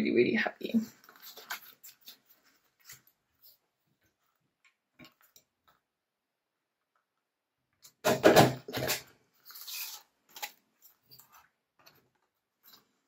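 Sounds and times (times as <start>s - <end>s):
paper rustling: 0.9s - 4.4s.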